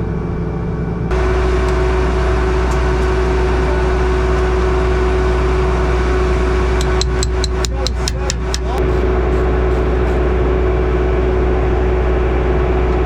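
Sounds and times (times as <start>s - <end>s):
engine running with whine: 0.0s - 13.0s
rapid sharp clicks: 6.8s - 8.8s.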